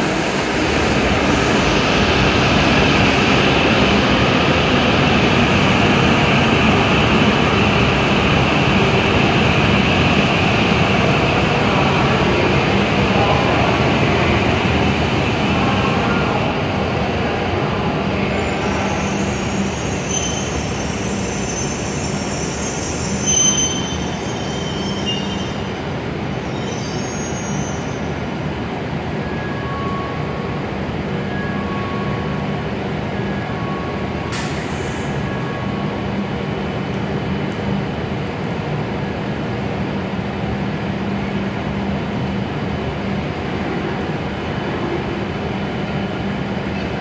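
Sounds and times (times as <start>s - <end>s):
train rolling and braking: 0.0s - 39.5s
high brake squeals: 18.4s - 25.8s, 26.4s - 28.1s.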